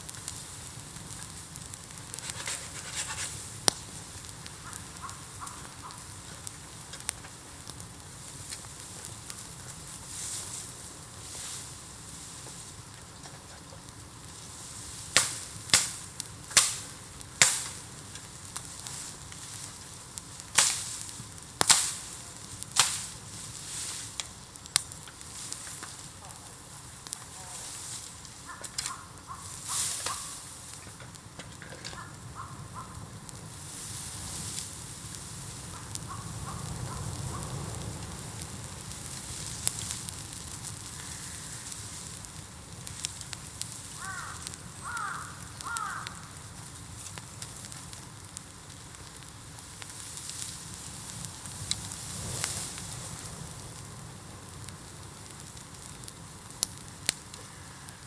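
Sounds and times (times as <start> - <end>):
bonfire crackling hiss: 0.0 - 58.0
low fire rumble: 0.0 - 58.0
sharp pops of burning bamboo: 0.0 - 58.0.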